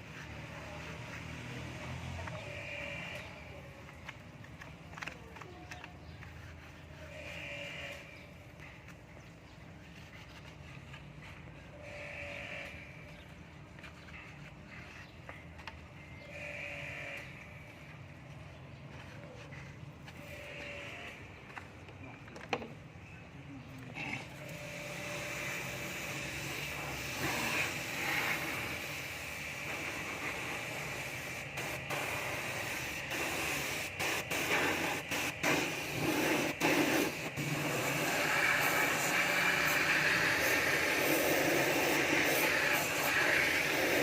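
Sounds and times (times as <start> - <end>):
water spray hissing: 24.5 - 44.0.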